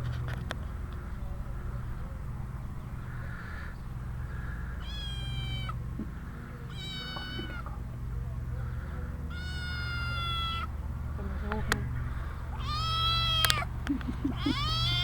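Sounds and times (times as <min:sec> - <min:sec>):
steady low rumble: 0:00.0 - 0:15.0
cat meowing: 0:04.8 - 0:05.8, 0:06.7 - 0:07.7, 0:09.3 - 0:10.7, 0:12.6 - 0:13.7, 0:14.3 - 0:15.0.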